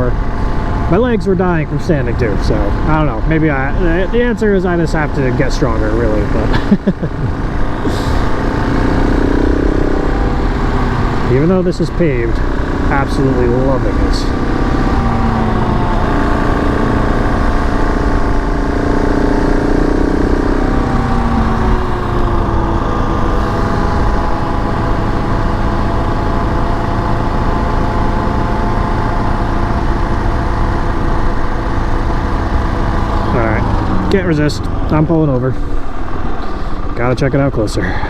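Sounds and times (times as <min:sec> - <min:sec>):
motorcycle engine running: 0:00.0 - 0:37.7
wind rumble on microphone: 0:14.2 - 0:27.9.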